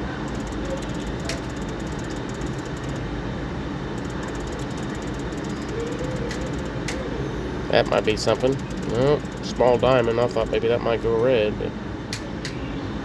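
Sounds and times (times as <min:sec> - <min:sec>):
soft slot machine tone: 0:00.0 - 0:03.0, 0:04.0 - 0:10.9
slot machine ticks: 0:00.0 - 0:03.2, 0:03.9 - 0:11.4
casino background hum: 0:00.0 - 0:13.0.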